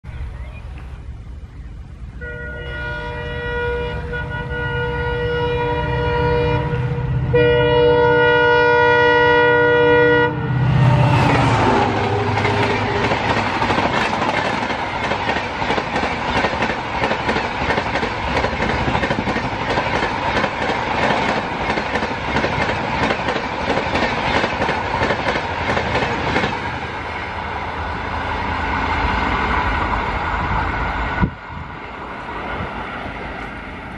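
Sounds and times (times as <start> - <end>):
locomotive multi-tone horn: 2.1 - 13.8
train coaches rushing by: 8.1 - 33.9
wheels rattling over rail joints: 11.2 - 33.9.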